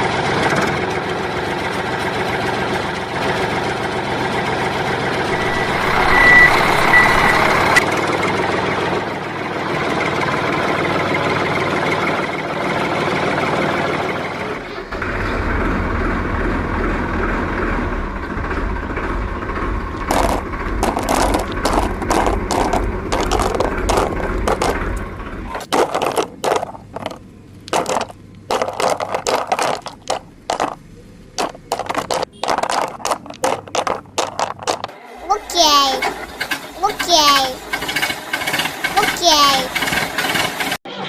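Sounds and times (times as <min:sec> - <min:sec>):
steady low hum: 0:15.1 - 0:25.6.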